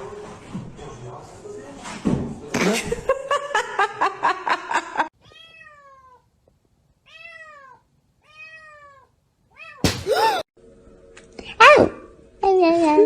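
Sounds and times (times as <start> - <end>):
cat meowing: 5.2 - 6.2, 7.1 - 9.8.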